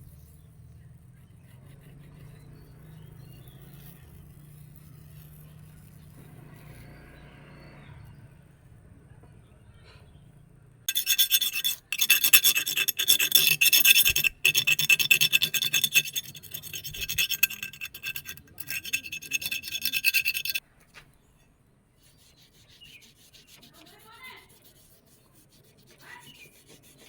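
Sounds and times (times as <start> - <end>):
blade ringing: 10.9 - 20.6
metal file rasping on blade: 10.9 - 20.6, 22.0 - 27.0.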